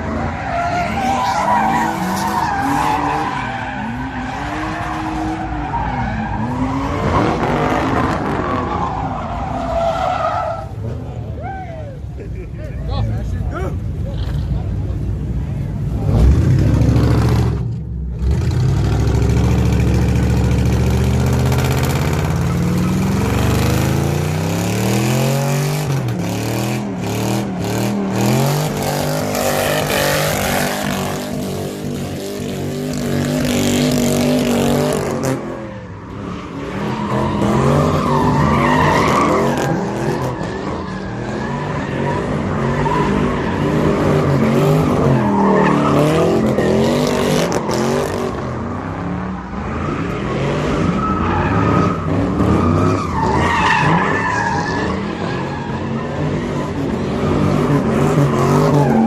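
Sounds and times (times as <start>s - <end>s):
tires squealing and skidding: 0.0s - 12.1s, 20.1s - 59.0s
car engine revving: 15.9s - 35.6s.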